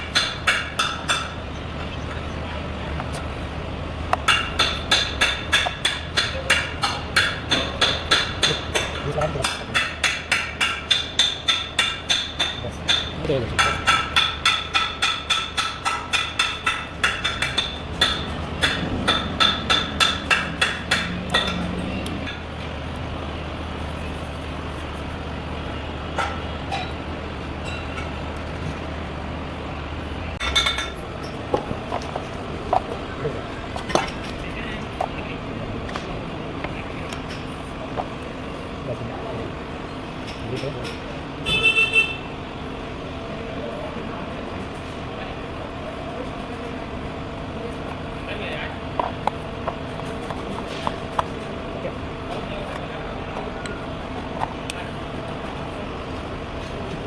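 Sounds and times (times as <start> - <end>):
hammer striking metal: 0.0 - 1.4, 4.1 - 22.4, 30.4 - 33.0
vehicle rumble: 0.0 - 57.0.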